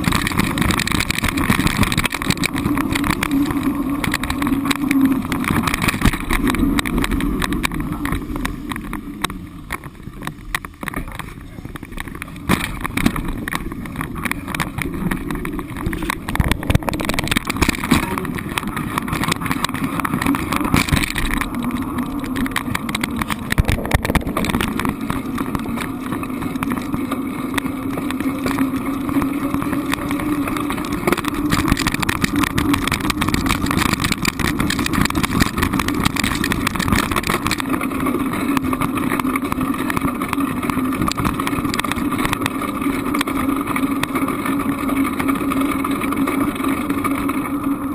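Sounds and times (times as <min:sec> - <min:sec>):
road vehicle driving: 0:00.0 - 0:47.9.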